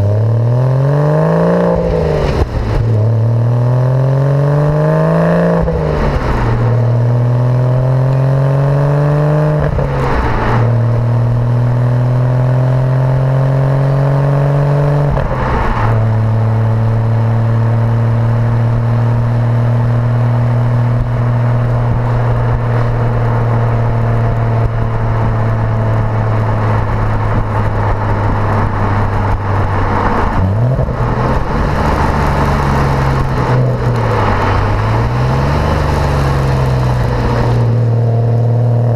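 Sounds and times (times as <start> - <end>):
sports car engine accelerating: 0.0 - 38.9.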